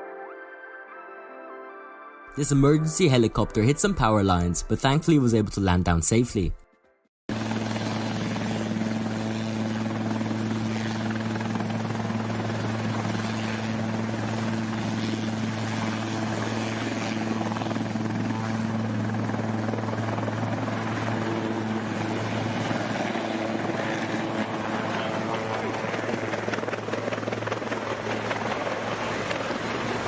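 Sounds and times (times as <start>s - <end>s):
helicopter rotor and engine hum: 7.3s - 30.0s.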